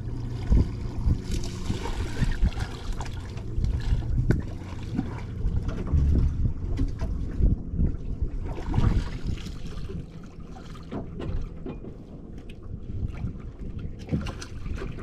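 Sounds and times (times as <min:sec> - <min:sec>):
low knocks and thumps: 0:03.4 - 0:09.1.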